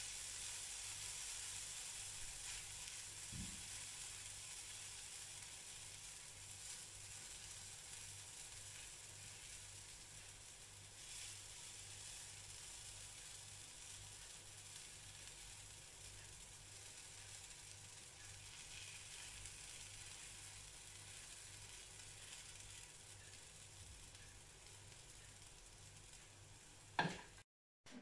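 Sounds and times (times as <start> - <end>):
batter sizzling in a pan: 0.0 - 27.4.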